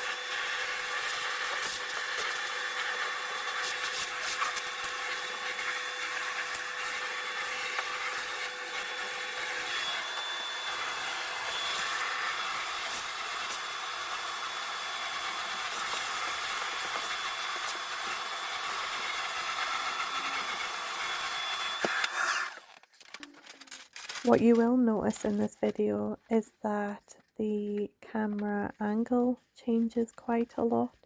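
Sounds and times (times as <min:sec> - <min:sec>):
vacuum cleaner running: 0:00.0 - 0:22.7.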